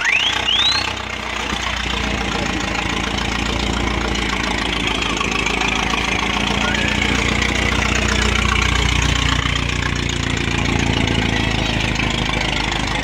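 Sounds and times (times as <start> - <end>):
quick rising whistles: 0.0 - 1.0
car engine droning: 0.0 - 13.0.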